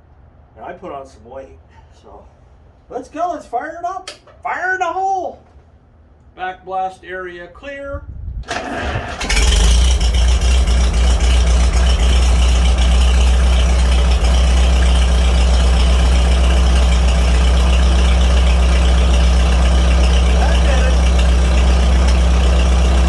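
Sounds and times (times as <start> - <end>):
tractor engine starting and running: 8.3 - 23.0.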